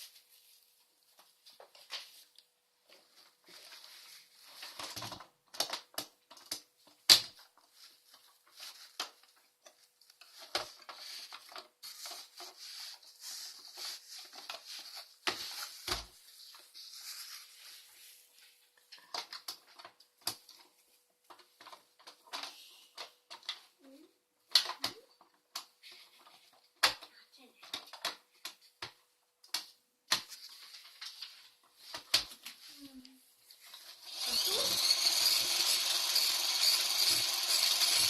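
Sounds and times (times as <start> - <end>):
plastic toy pieces clattering: 33.7 - 38.0.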